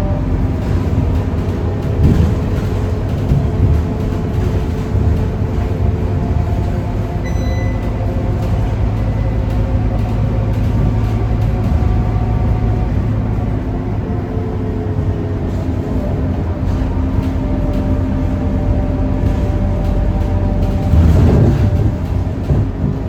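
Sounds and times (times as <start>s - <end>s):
bus diesel engine under load: 0.0s - 23.0s
short high beep: 7.2s - 7.9s.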